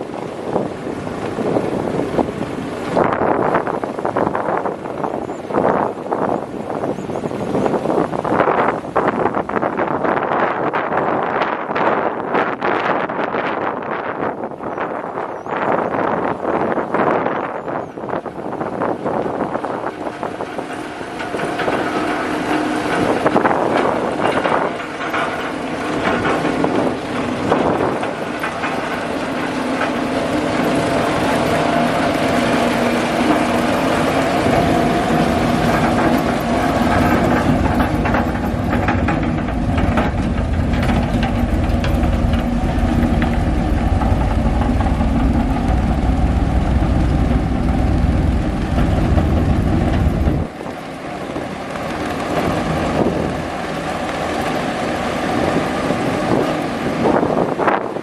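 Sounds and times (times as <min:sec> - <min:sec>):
diesel engine rumbling: 0:18.2 - 0:58.0.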